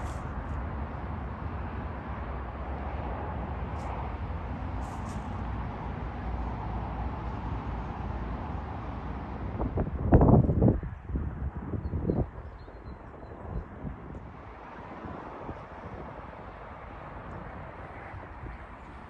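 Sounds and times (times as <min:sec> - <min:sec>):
hiss: 0:00.0 - 0:00.5, 0:04.7 - 0:05.6.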